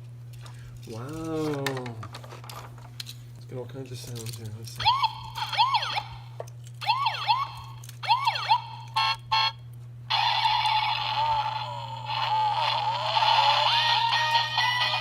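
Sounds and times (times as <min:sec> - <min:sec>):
toy siren wailing: 0:04.8 - 0:15.0.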